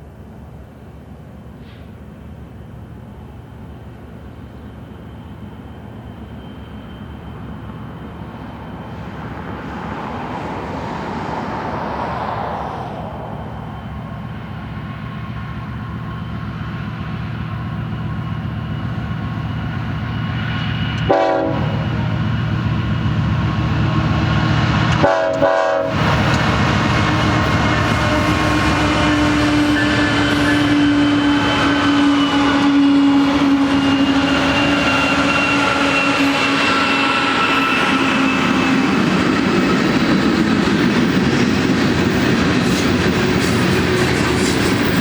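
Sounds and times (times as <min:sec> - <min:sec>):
diesel locomotive engine rumble: 0:00.0 - 0:45.0
train horn blasts: 0:20.9 - 0:22.3, 0:24.9 - 0:38.8.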